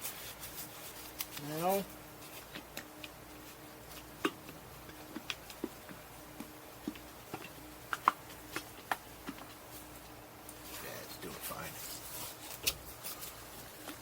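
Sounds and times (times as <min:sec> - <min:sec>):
clicks and taps of paint container: 0:04.2 - 0:09.6.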